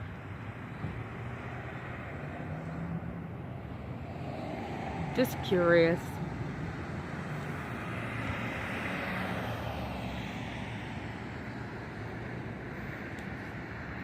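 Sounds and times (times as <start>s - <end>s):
traffic noise: 0.0s - 14.0s
vehicle passing: 1.0s - 14.0s.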